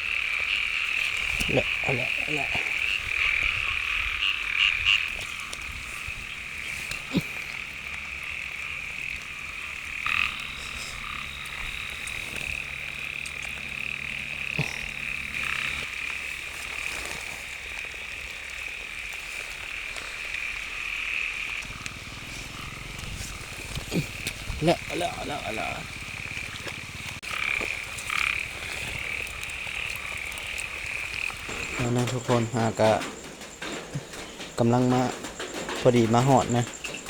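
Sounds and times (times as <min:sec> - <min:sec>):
chorus of frogs trilling: 0:00.0 - 0:37.0
faint knocks: 0:29.2 - 0:37.0.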